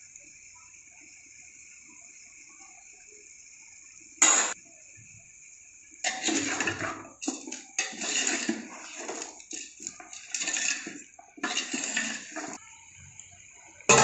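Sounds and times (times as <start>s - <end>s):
pots and utensils scraping and clinking: 6.0s - 12.6s.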